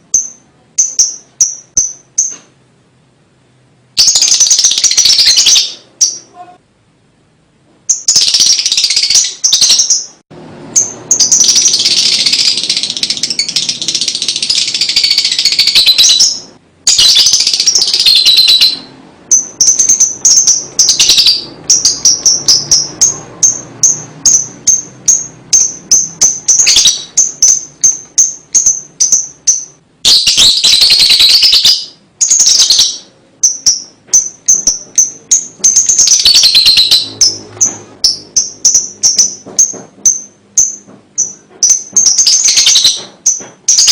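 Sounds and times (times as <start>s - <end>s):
bird ticking notes: 0.1s - 2.4s, 7.9s - 43.9s
lovebird shrill trills: 10.8s - 37.4s.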